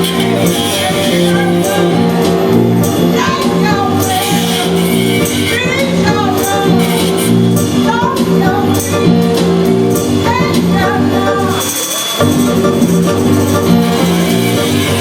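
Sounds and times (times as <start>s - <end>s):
tambourine strokes: 0.0s - 7.8s, 11.2s - 15.0s
person singing: 0.0s - 12.2s
bass line: 0.0s - 15.0s
live band music: 0.0s - 15.0s.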